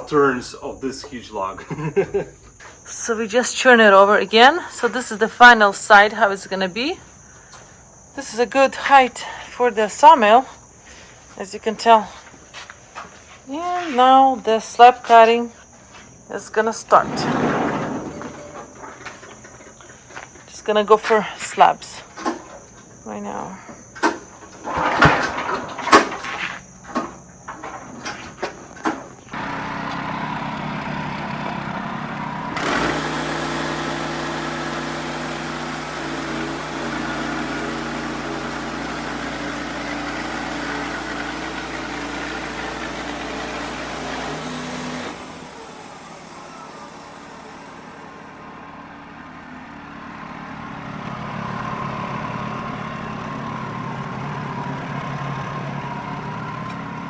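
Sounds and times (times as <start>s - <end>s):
sharp knocks: 17.0s - 19.6s
band sawmill cutting log: 29.3s - 57.0s.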